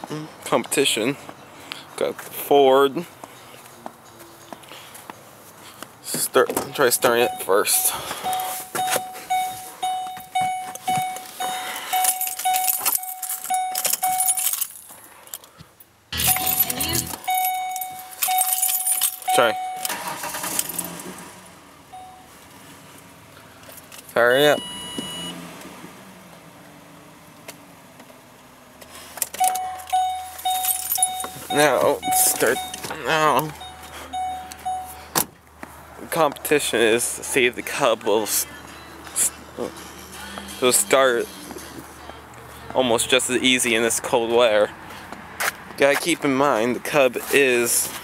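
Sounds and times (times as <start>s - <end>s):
vehicle warning chime dinging: 6.6s - 14.6s, 16.2s - 20.9s, 21.8s - 22.4s, 24.3s - 25.4s, 29.3s - 35.2s, 37.7s - 42.2s
keys jingling: 8.3s - 15.4s, 16.2s - 20.9s, 29.2s - 32.9s.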